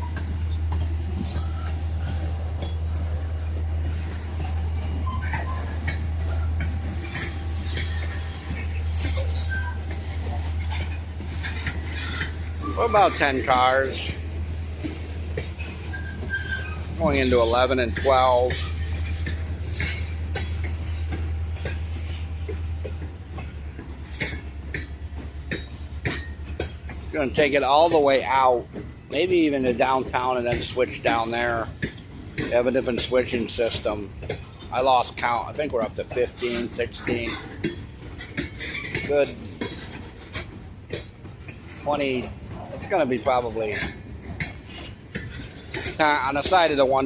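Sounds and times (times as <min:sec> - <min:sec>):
metallic clinks and squeaks: 0:00.0 - 0:29.1, 0:30.6 - 0:47.0
freight train rumbling: 0:00.0 - 0:47.0
wheels clacking over rail joints: 0:00.0 - 0:47.0.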